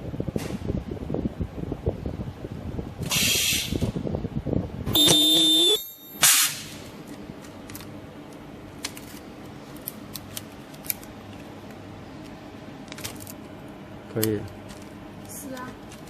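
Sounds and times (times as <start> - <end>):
low machine hum: 4.7 - 16.0
welding machine high whine: 5.0 - 6.5.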